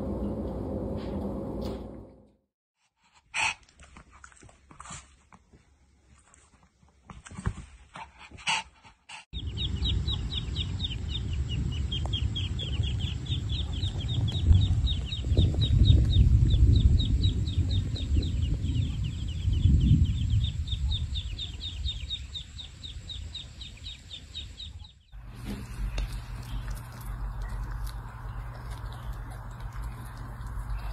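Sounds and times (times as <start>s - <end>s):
chick peeping: 9.4s - 30.9s.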